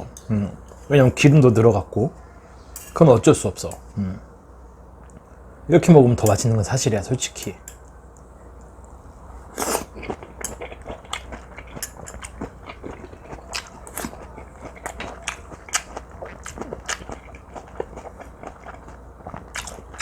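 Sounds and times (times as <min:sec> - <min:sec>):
close chewing of meat: 0:09.5 - 0:20.0.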